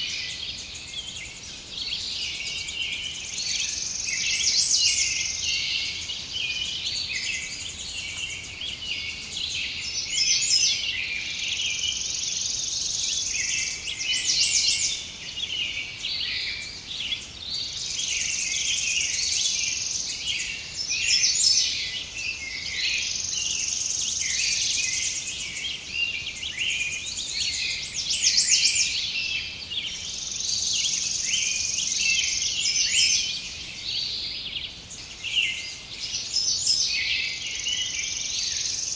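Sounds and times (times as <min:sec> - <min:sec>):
birds chirping and singing: 0:00.0 - 0:38.9.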